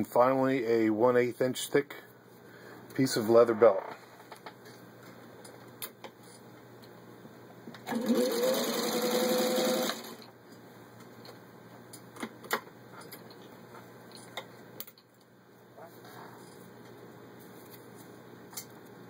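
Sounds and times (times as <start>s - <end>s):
sewing machine stitching: 7.8s - 10.2s.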